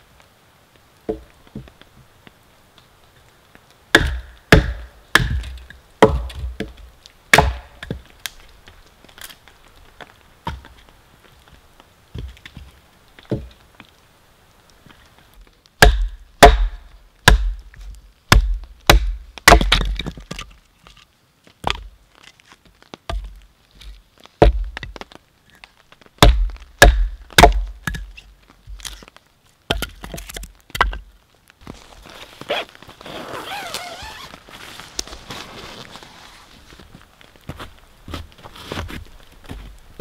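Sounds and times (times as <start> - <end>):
wood splitting knocks and cracks: 3.9 - 8.4, 15.8 - 20.6, 21.6 - 25.2, 26.2 - 29.1, 29.7 - 31.8.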